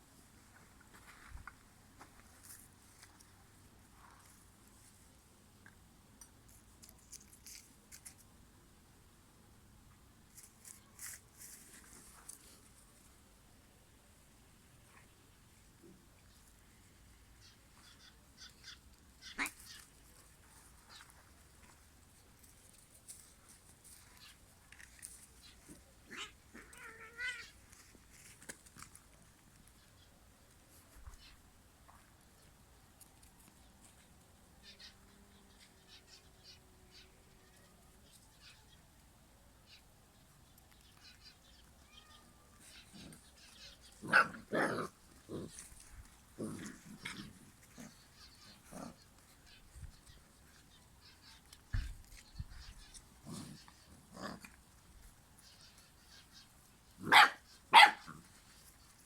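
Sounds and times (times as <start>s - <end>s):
puppies growling and barking: 44.0s - 49.2s.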